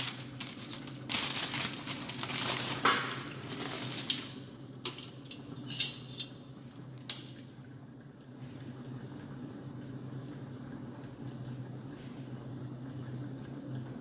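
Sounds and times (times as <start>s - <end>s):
utensils clinking on dishes: 0.0s - 6.4s.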